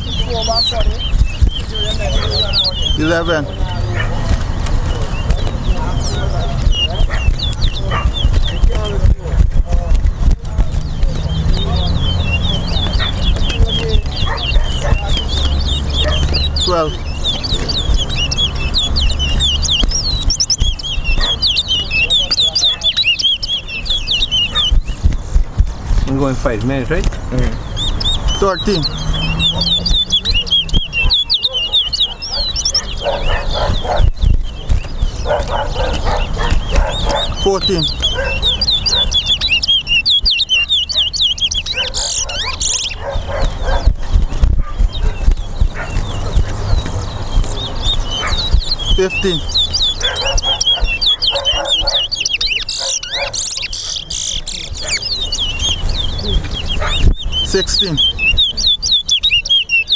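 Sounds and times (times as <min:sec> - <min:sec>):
finch singing whistled notes: 0:00.0 - 0:59.9
dog barking: 0:02.1 - 0:02.4, 0:03.9 - 0:04.3, 0:07.0 - 0:08.1, 0:14.2 - 0:15.1, 0:21.2 - 0:21.5, 0:31.0 - 0:34.2, 0:35.2 - 0:37.5, 0:38.1 - 0:39.3, 0:41.7 - 0:44.0, 0:44.6 - 0:46.5, 0:48.2 - 0:48.6, 0:49.9 - 0:53.4, 0:56.8 - 0:57.1.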